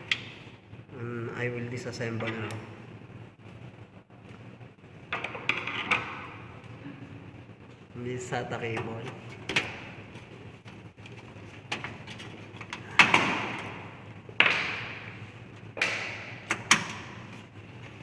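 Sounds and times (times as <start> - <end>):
computer parts knocking and clattering: 9.4 - 10.0, 11.6 - 15.1.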